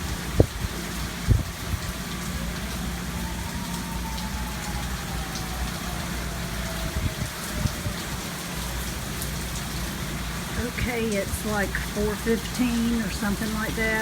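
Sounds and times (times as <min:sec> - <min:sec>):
gusting wind: 0:00.0 - 0:14.0
heavy rain: 0:00.0 - 0:14.0
wind thumps on microphone: 0:00.3 - 0:01.9.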